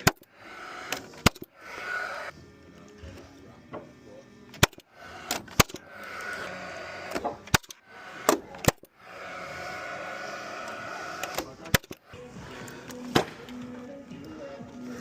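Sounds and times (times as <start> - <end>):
nail gun firing: 0.0 - 2.1, 4.5 - 9.3, 10.6 - 12.0, 12.8 - 13.7
steady hum: 0.0 - 15.0.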